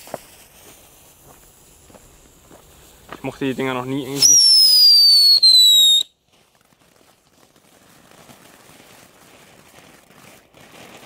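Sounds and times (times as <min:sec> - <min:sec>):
faint uneven hiss: 0:00.0 - 0:11.0
firework falling whistle: 0:04.1 - 0:06.1.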